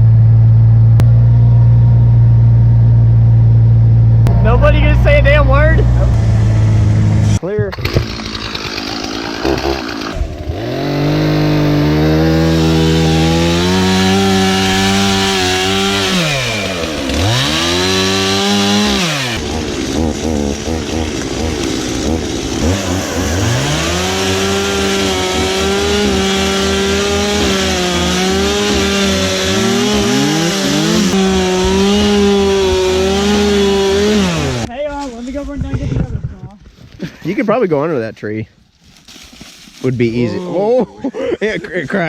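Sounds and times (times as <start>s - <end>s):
chainsaw revving: 4.3s - 34.7s.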